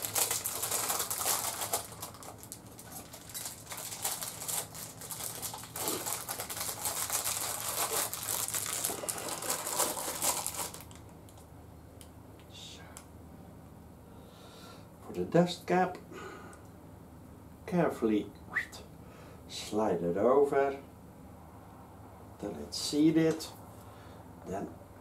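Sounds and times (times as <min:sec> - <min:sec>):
packaging rustling: 0:00.0 - 0:11.4.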